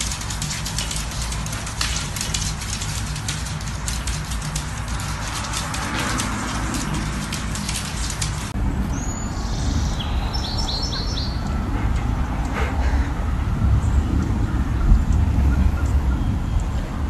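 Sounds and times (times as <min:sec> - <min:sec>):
rapid clicking: 0:00.0 - 0:08.6
low rumble of wind or traffic: 0:00.0 - 0:17.0.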